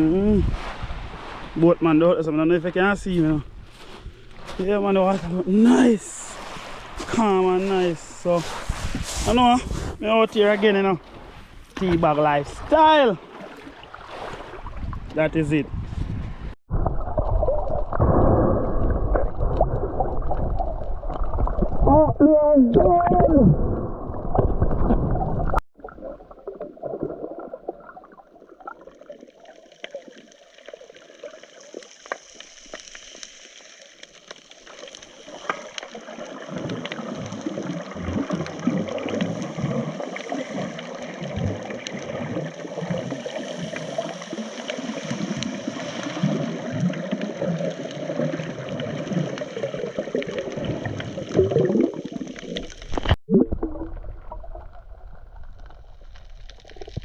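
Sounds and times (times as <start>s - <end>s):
water sloshing and gurgling: 0.0s - 57.0s.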